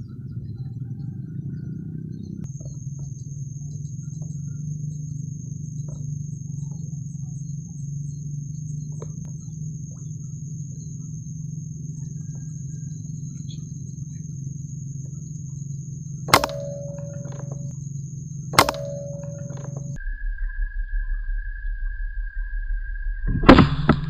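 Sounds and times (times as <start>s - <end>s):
steady low hum: 0.0s - 24.0s
air rifle shots: 16.3s - 17.7s, 18.6s - 20.0s.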